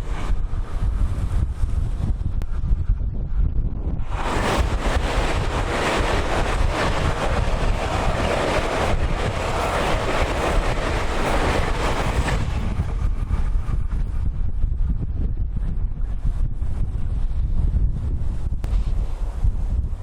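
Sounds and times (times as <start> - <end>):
electric train passing: 0.0 - 1.7, 4.0 - 14.2
wind buffeting microphone: 0.0 - 20.0.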